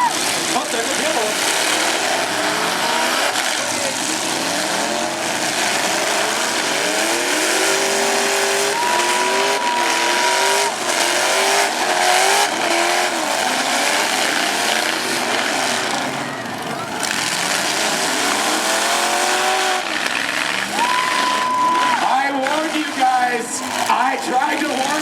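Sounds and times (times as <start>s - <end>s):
trucks hitting knocks: 0.0s - 23.0s
truck engines revving hard: 0.0s - 25.0s.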